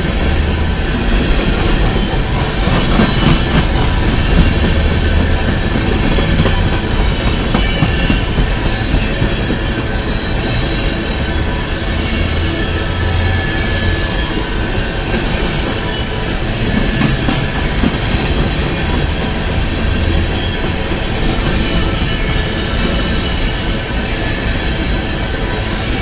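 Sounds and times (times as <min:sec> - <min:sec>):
steel wheels rumbling on rail: 0:00.0 - 0:26.0.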